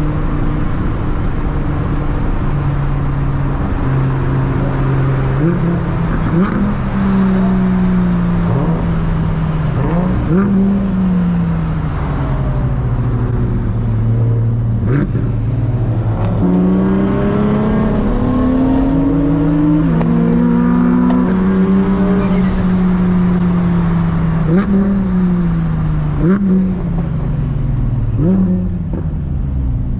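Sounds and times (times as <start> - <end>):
car engine revving: 0.0 - 29.9.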